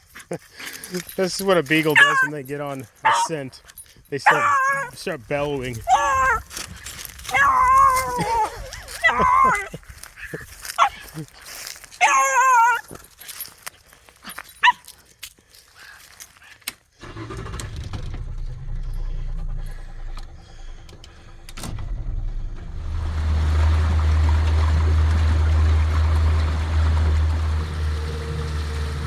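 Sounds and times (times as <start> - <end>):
light clicks and rustles: 0.0 - 4.2, 12.8 - 16.9
dog baying: 1.8 - 2.4, 3.0 - 3.4, 4.2 - 5.1, 5.8 - 6.6, 7.3 - 9.8, 10.7 - 11.2, 12.0 - 12.9
boat motor hum: 17.0 - 29.0
water noise: 19.0 - 29.0.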